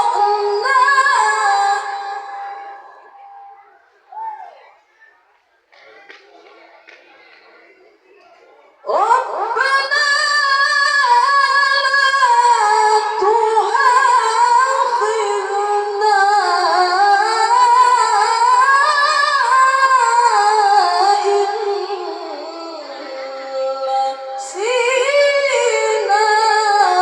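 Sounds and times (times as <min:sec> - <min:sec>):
young person melodic recitation: 0:08.9 - 0:27.0.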